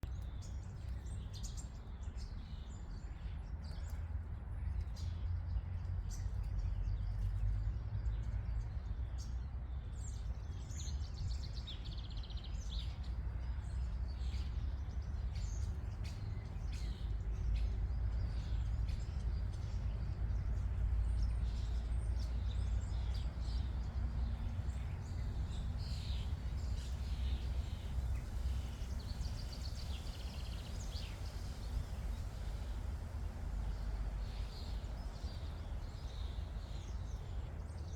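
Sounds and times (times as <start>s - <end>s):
steady low rumble: 11.9s - 37.9s.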